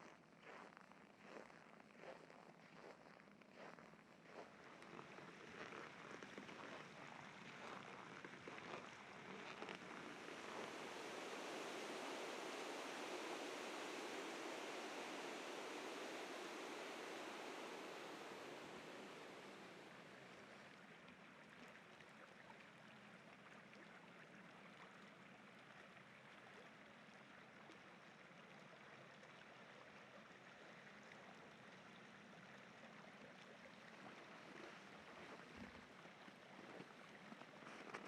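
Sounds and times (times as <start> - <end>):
river rapids rushing: 10.2 - 20.0.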